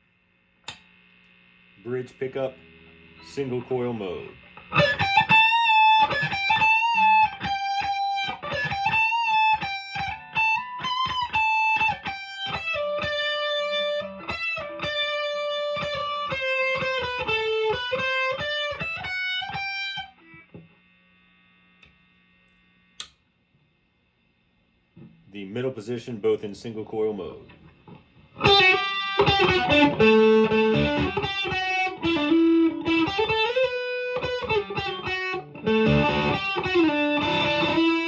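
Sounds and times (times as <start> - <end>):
faint amp hum: 0.0 - 38.0
sharp click: 0.6 - 1.4, 23.0 - 23.2
distorted electric guitar lead: 1.5 - 20.8, 27.4 - 38.0.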